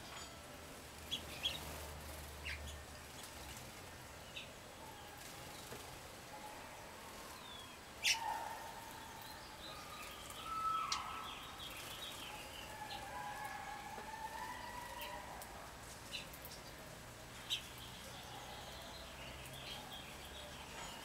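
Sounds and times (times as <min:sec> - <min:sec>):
songbirds whistling and chirping: 0:07.4 - 0:13.5.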